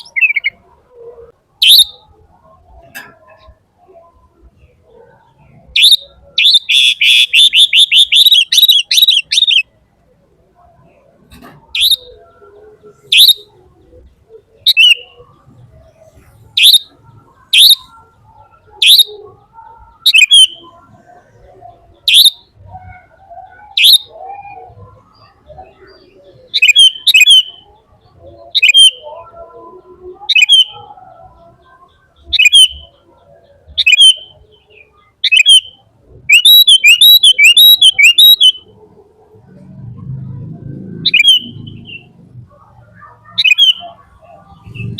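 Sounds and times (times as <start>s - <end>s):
rapid bird trill: 0.0s - 1.0s, 1.6s - 2.6s, 4.9s - 9.7s, 11.7s - 13.6s, 14.3s - 15.4s, 16.6s - 20.8s, 21.9s - 38.8s, 41.0s - 44.9s
bird chirping: 0.0s - 38.9s, 40.6s - 44.9s.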